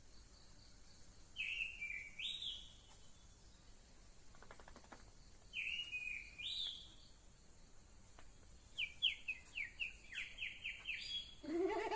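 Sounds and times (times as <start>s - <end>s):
bird chirping: 0.0s - 11.9s
fast clicking: 4.3s - 5.2s.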